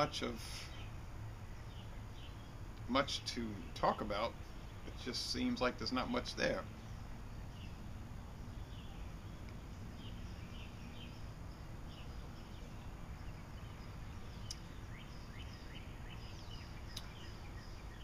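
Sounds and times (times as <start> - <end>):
birds chirping: 0.0 - 18.0
low background noise: 0.0 - 18.0
sharp clicks: 14.4 - 14.7, 16.9 - 17.1.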